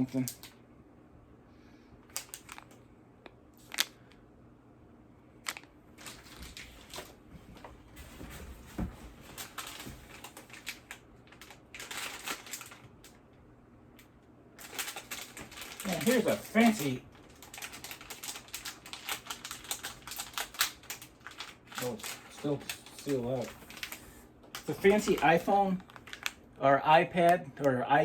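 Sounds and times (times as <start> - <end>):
plastic packaging rustling: 2.1 - 2.8, 5.4 - 13.2, 14.6 - 26.5.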